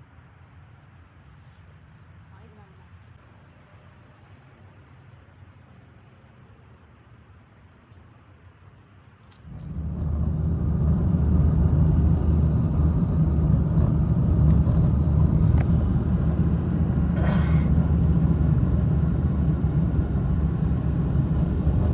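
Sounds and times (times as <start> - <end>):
loud low rumble: 9.5 - 21.9.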